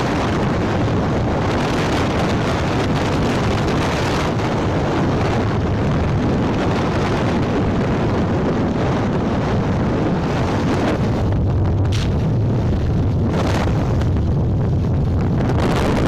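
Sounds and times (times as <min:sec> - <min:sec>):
motorcycle engine drone: 0:00.0 - 0:16.0
wind buffeting microphone: 0:00.0 - 0:16.0.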